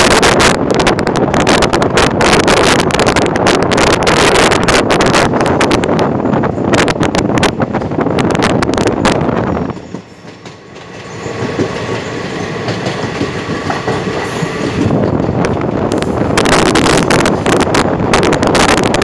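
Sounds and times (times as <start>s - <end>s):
train wheels clattering over rails: 6.8s - 19.0s.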